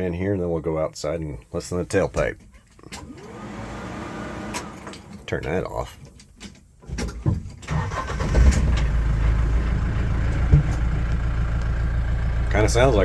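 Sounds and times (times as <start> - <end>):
diesel engine starting and idling: 2.9 - 5.9, 7.6 - 13.0.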